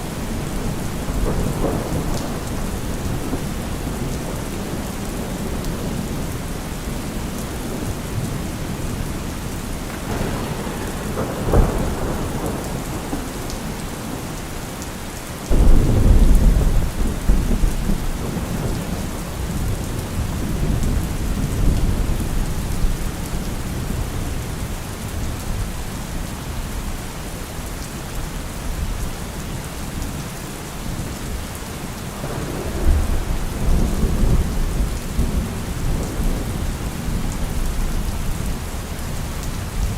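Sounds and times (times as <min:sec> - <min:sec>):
thunder: 0:00.0 - 0:14.5, 0:15.5 - 0:24.4, 0:32.1 - 0:38.5
steady rain: 0:00.0 - 0:39.9.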